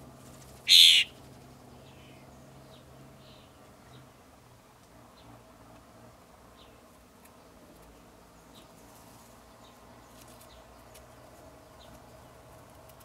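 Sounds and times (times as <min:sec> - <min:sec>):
faint bird chirps: 0:00.7 - 0:01.1.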